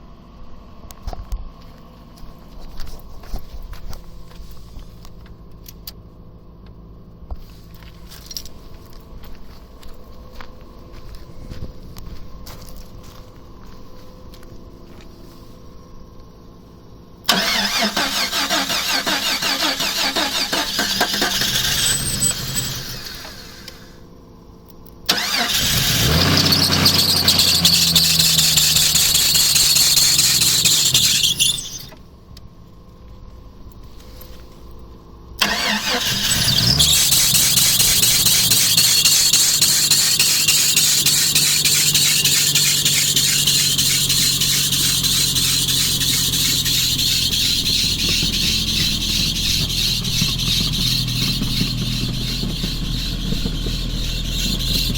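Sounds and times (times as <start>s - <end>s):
high-pitched whine over engine: 7.3s - 32.9s, 35.4s - 54.9s
engine cranking and starting: 17.2s - 24.0s, 25.0s - 32.0s, 35.4s - 54.9s.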